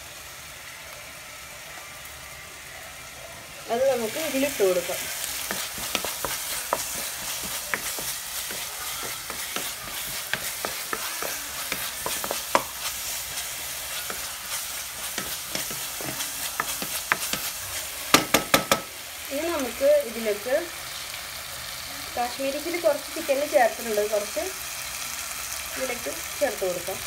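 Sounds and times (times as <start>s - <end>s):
vegetables sizzling in oil: 0.0s - 27.0s
wooden spatula scraping and tapping: 4.2s - 18.8s
spatula knocking on pan: 5.0s - 12.9s, 15.0s - 18.9s.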